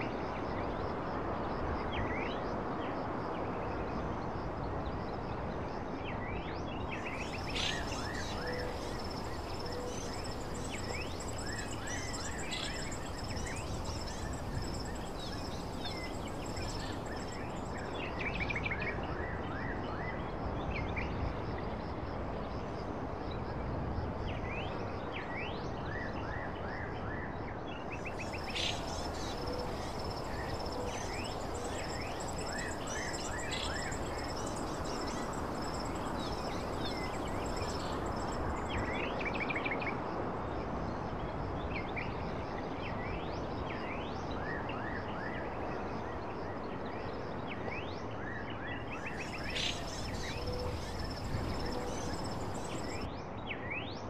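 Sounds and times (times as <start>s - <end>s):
background hiss: 7.0s - 18.3s, 27.9s - 39.1s, 49.0s - 53.1s
birds chirping: 7.1s - 18.0s, 28.0s - 38.8s, 49.1s - 53.1s
insect trilling: 7.2s - 17.8s, 28.0s - 38.8s, 49.2s - 53.1s.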